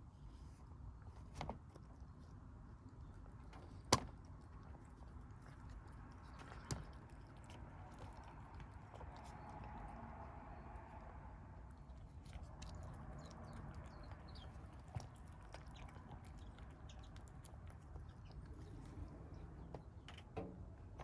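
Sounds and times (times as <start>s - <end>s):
low steady rumble: 0.0s - 21.0s
kittens chewing: 0.1s - 21.0s.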